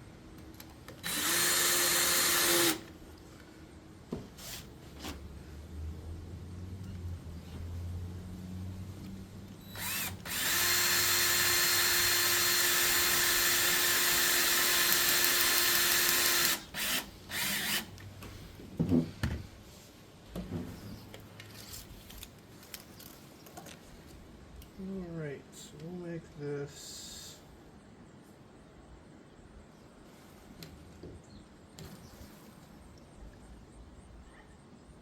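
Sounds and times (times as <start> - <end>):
power drill running: 1.0 - 2.9, 9.7 - 17.9.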